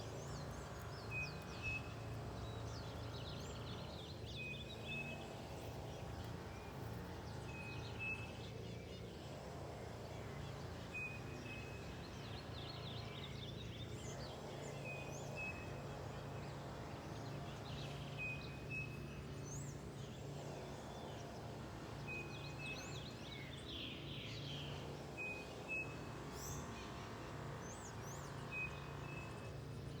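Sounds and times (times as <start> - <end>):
birds chirping: 0.0 - 8.5
low background hum: 0.0 - 30.0.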